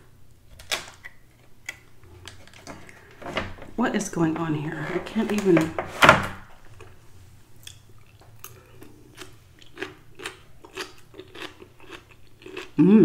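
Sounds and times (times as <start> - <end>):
person chewing food: 6.6 - 13.0.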